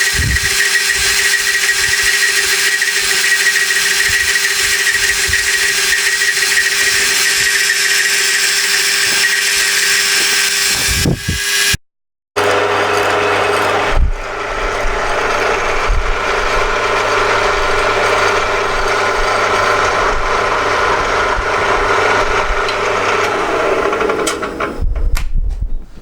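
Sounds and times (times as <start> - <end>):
machine tool humming: 0.0 - 11.8, 12.4 - 24.9.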